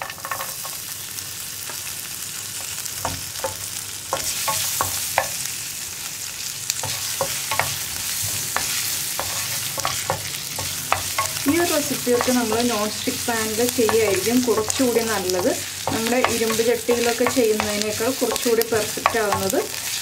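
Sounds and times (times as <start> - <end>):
ginger and garlic sizzling: 0.0 - 20.0
wooden spatula scraping pan: 6.8 - 20.0.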